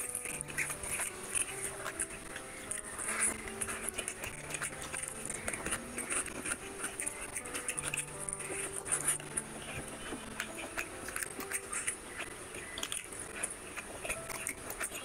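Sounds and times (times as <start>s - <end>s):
fingers squishing rice in gravy: 0.0s - 15.0s
soft background music: 0.0s - 15.0s
wet chewing and smacking: 0.0s - 15.0s.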